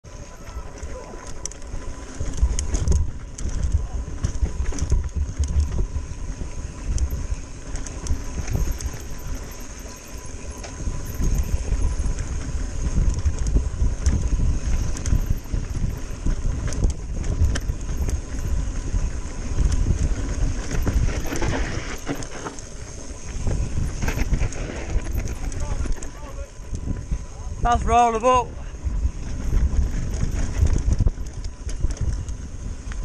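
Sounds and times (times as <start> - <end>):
wind rumble on microphone: 0.0 - 33.0
bike clattering over rocks: 19.6 - 26.7.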